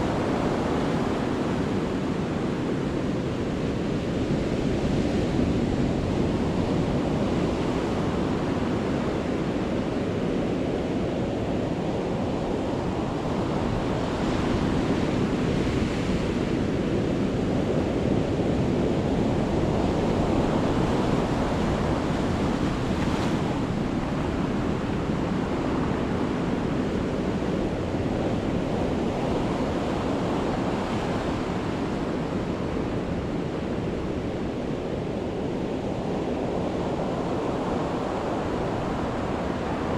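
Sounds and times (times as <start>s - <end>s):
sea waves breaking on shore: 12.2s - 39.9s.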